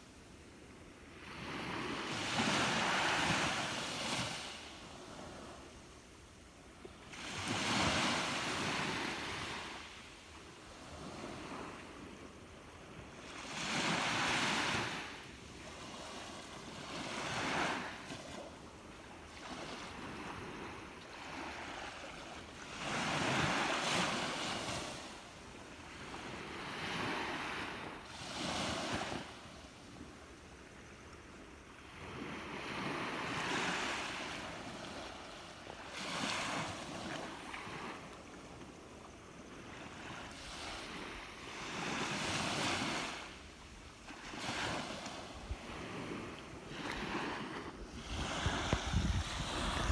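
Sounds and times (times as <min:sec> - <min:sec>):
sea waves breaking on shore: 0:07.1 - 0:12.2, 0:32.0 - 0:38.6, 0:39.3 - 0:49.9.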